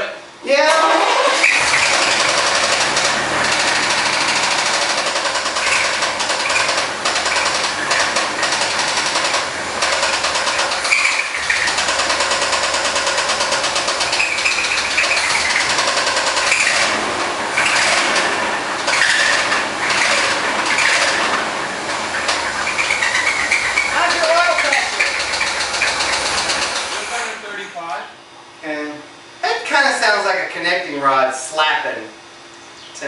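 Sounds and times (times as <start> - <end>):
car engine with rhythmic knock: 1.4 - 27.0.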